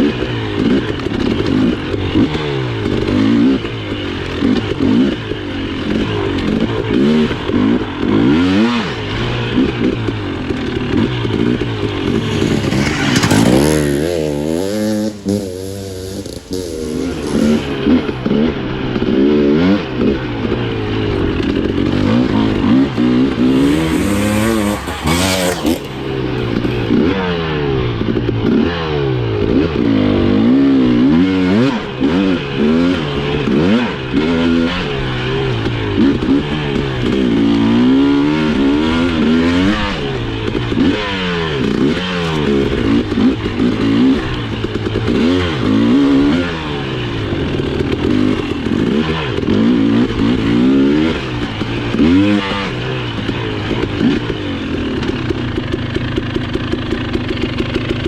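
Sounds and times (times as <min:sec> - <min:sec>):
dirt bike engine revving: 0:11.2 - 0:18.8, 0:20.3 - 0:27.2
bike clattering over rough ground: 0:12.0 - 0:14.6.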